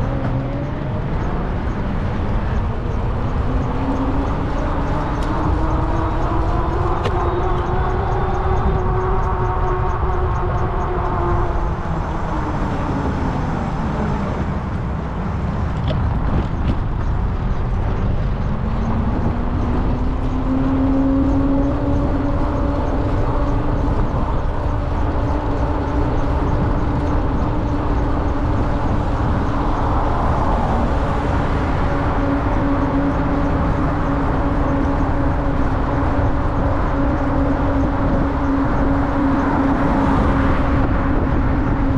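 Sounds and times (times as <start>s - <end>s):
wind rumble on microphone: 0.0s - 41.9s
electric bike motor whining: 1.9s - 13.1s.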